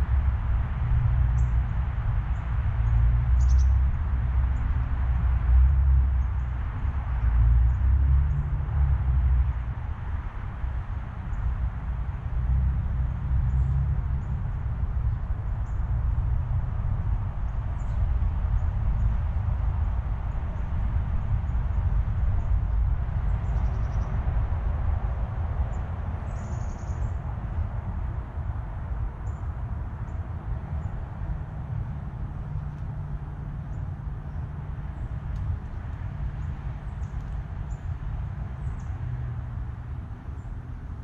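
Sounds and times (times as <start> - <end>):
steady low rumble: 0.0 - 41.0
small birds chirping: 2.9 - 3.8, 23.2 - 24.2, 25.7 - 27.3.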